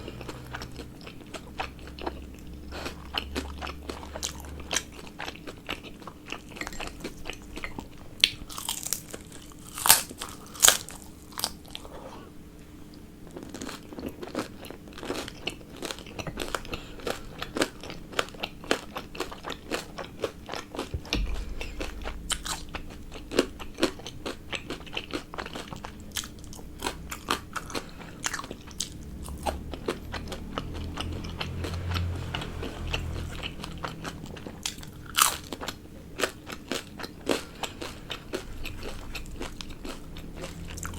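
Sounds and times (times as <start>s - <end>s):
crunchy biting and chewing: 0.0s - 12.0s, 13.3s - 40.9s.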